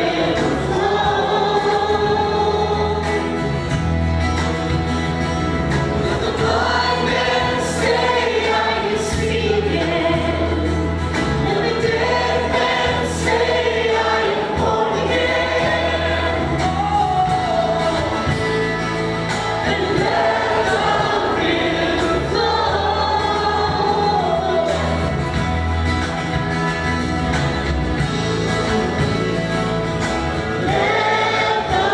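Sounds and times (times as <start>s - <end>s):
group singing worship song: 0.0s - 3.9s, 6.0s - 25.6s, 30.3s - 31.9s
band playing: 0.0s - 31.9s
steady bass notes: 0.0s - 31.9s.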